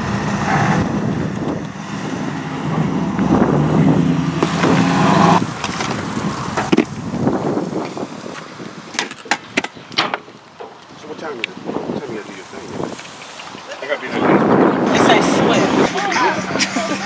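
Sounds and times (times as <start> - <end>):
car engine running: 0.0 - 6.9.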